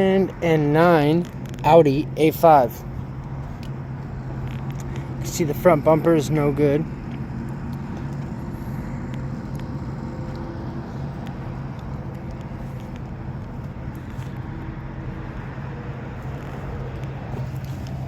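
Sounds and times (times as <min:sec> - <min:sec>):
faint clicks and rustles: 0:02.8 - 0:05.2, 0:07.0 - 0:18.0.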